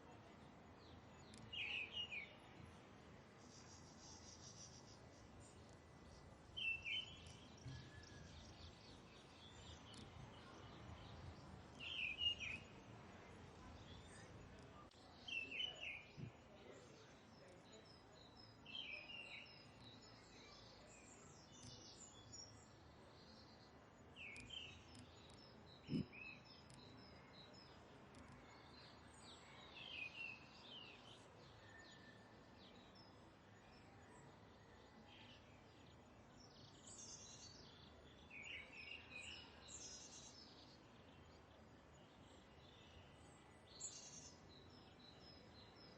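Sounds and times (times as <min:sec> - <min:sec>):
faint background hiss: 0:00.0 - 0:45.9
birds chirping: 0:13.6 - 0:33.8.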